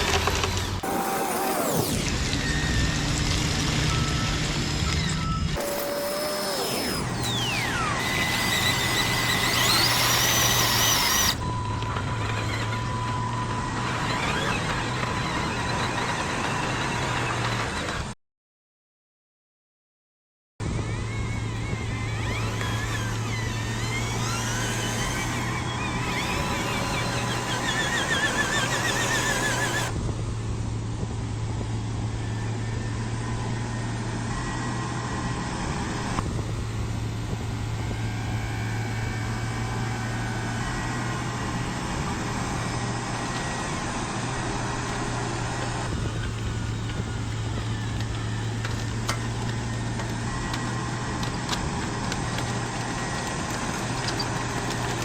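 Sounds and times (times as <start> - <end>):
wavering whine: 0.7 - 17.8, 20.6 - 52.4
low engine-like hum: 20.6 - 55.0.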